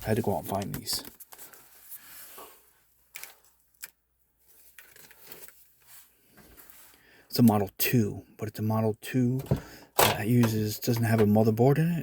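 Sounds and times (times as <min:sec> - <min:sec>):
soft rustle: 0:00.0 - 0:03.6, 0:04.4 - 0:07.0.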